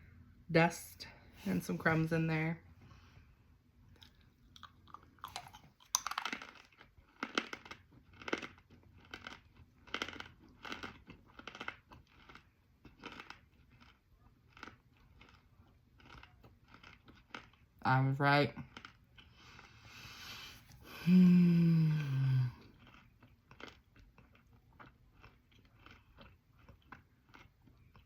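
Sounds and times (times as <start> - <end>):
crunchy chewing: 3.9 - 17.8, 18.6 - 20.9, 22.5 - 28.0.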